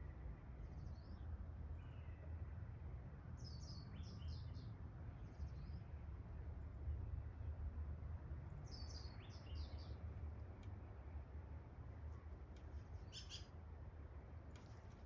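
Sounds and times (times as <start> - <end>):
low outdoor rumble: 0.0 - 15.0
small songbirds chirping: 0.1 - 2.6, 3.3 - 6.1, 8.5 - 10.2, 12.7 - 13.6.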